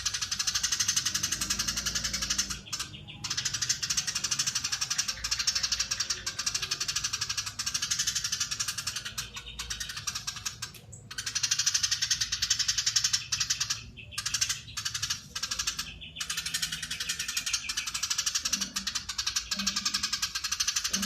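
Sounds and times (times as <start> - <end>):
sparrow fast chattering calls: 0.0 - 21.0.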